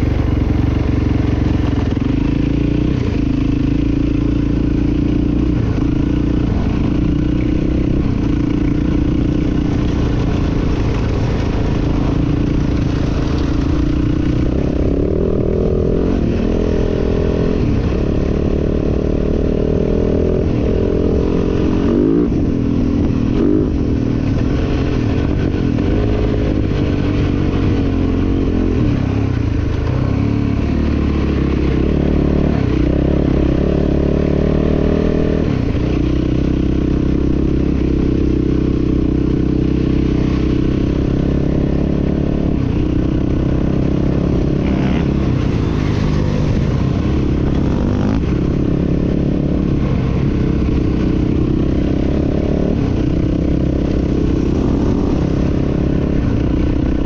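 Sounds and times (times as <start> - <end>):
dirt bike engine revving: 40.5 - 57.0.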